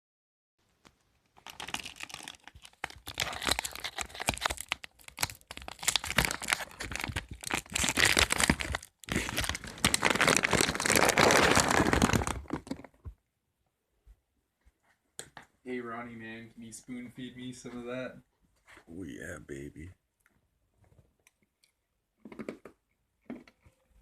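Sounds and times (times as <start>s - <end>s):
packaging crinkling: 1.3s - 13.1s.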